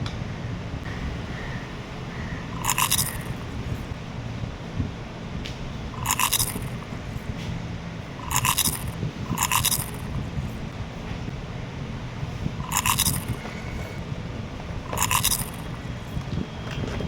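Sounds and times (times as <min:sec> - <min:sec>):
child chewing cake: 0:02.6 - 0:03.4, 0:06.0 - 0:06.8, 0:08.2 - 0:10.1, 0:12.6 - 0:13.4, 0:14.9 - 0:15.8
wet mouth noises: 0:02.6 - 0:03.4, 0:06.0 - 0:06.8, 0:08.2 - 0:10.1, 0:12.6 - 0:13.4, 0:14.9 - 0:15.8.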